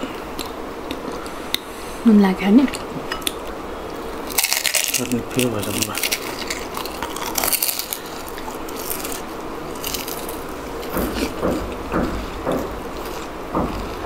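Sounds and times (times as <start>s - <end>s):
crunchy chewing of crisp food: 3.2s - 14.0s.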